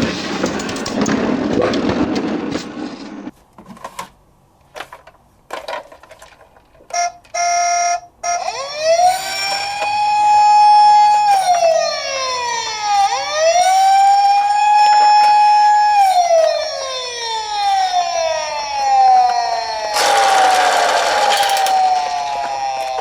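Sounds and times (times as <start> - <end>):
siren wailing: 7.4 - 23.0.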